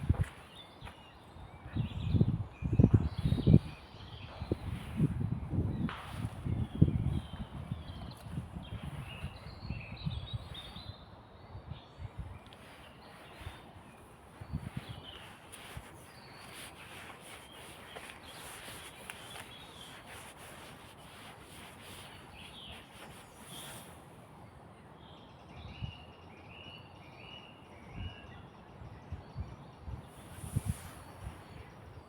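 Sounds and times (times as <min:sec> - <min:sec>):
soft footstep thumps: 0:00.0 - 0:01.0, 0:14.5 - 0:23.2
small bird chirping: 0:11.8 - 0:23.9
crackling rustles: 0:12.4 - 0:24.1, 0:30.2 - 0:31.6.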